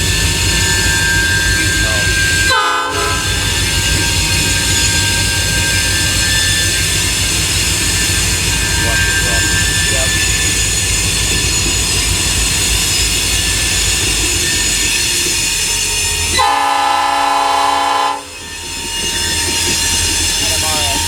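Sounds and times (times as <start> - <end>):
freight train rumbling: 0.0 - 21.0
locomotive air horn blast: 2.5 - 3.4, 16.4 - 18.3
wheel squeal: 3.1 - 16.6, 18.3 - 21.0.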